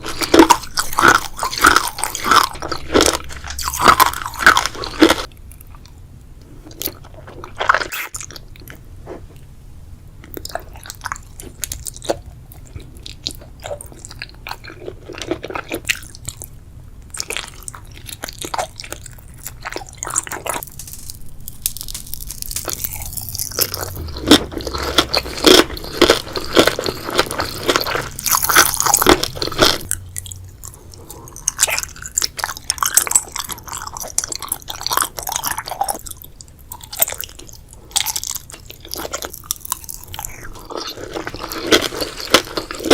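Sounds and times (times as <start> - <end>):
chewing crunchy food: 0.0 - 9.2, 10.2 - 42.9.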